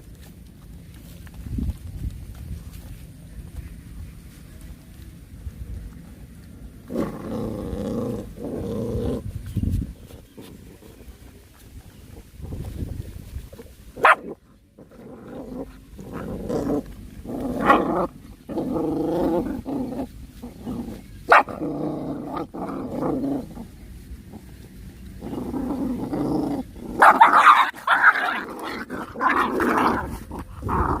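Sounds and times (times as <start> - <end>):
puppies growling and snarling: 5.8 - 31.0
puppy barking: 14.0 - 14.4, 21.3 - 21.6, 27.0 - 28.4.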